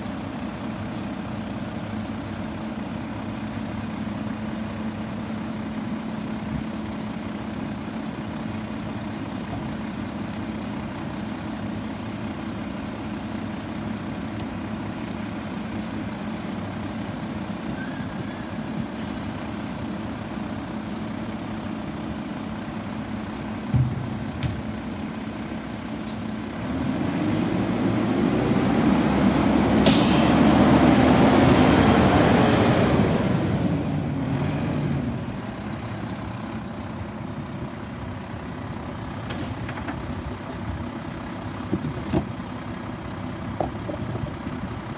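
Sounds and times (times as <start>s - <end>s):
truck diesel engine idling: 0.0s - 26.7s, 27.5s - 44.9s
air brake hiss: 29.8s - 30.4s.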